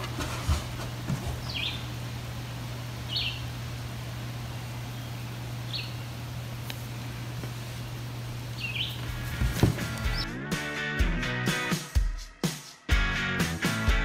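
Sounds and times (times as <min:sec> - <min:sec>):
steady low hum: 0:00.0 - 0:10.3
bird chirps: 0:01.4 - 0:01.9, 0:03.1 - 0:03.5, 0:04.9 - 0:06.2, 0:08.6 - 0:09.0.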